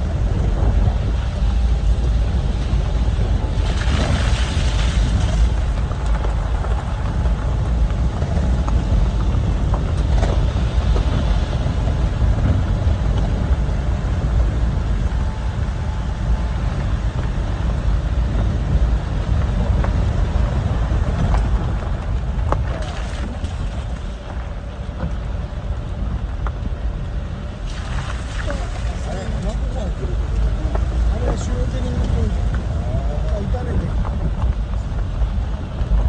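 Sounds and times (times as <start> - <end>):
vehicle engine rumbling: 0.0 - 36.0.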